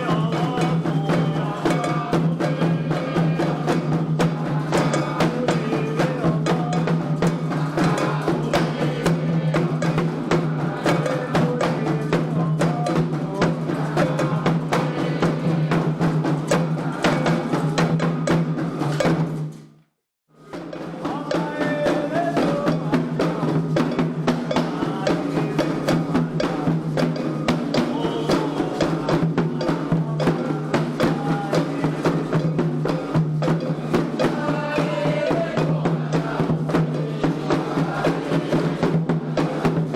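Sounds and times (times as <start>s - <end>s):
struck bell or wood block: 0.0s - 14.9s
person singing: 0.0s - 18.3s, 20.4s - 39.9s
hand drums: 0.0s - 19.7s, 20.3s - 39.9s.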